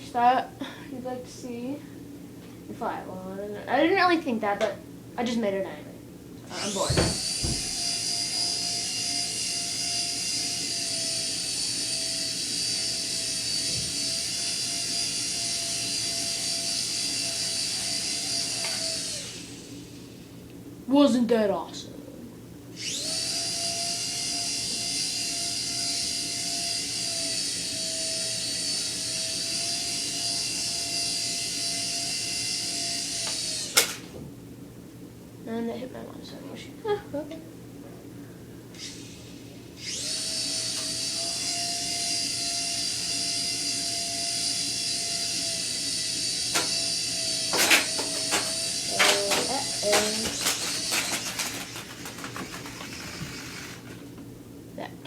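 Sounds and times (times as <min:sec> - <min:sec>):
toy helicopter motor whine: 0:06.5 - 0:20.2, 0:22.8 - 0:34.0, 0:38.7 - 0:54.1.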